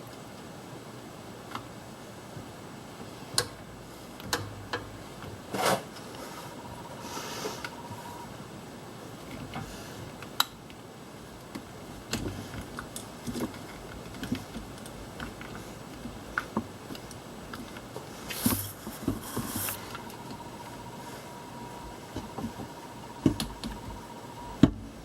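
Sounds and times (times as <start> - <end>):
rustling scrapes: 5.5 - 7.6, 18.1 - 20.1
small clicks and taps on parts: 11.4 - 18.1.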